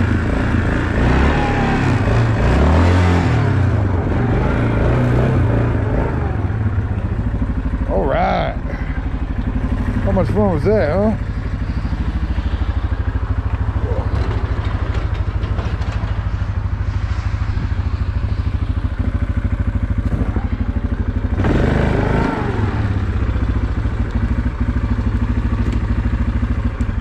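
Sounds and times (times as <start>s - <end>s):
atv engine idling: 0.0s - 16.9s, 17.8s - 27.0s.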